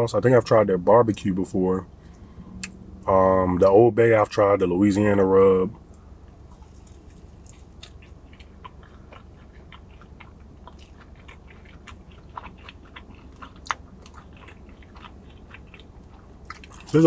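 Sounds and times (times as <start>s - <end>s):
person chewing with clicks: 6.3s - 17.0s.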